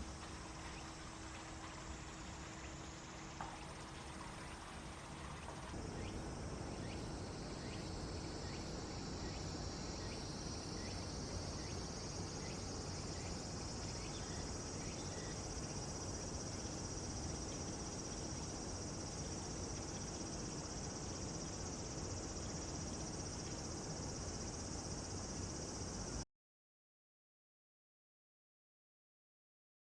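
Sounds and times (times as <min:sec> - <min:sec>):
insects trilling: 0:00.0 - 0:26.2.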